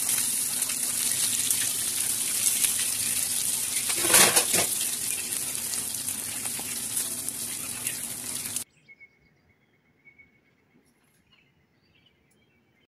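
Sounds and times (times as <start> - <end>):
fish sizzling in hot oil: 0.0 - 8.6.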